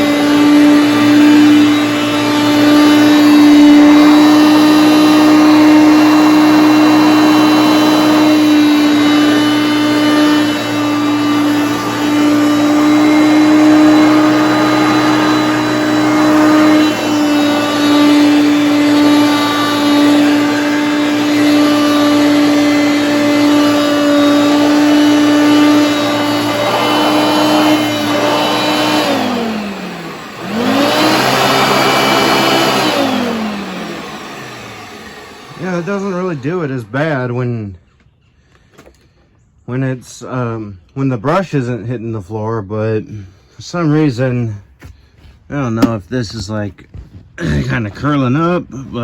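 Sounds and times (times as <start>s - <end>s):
upright vacuum cleaner running: 0.0s - 37.5s, 45.6s - 46.0s.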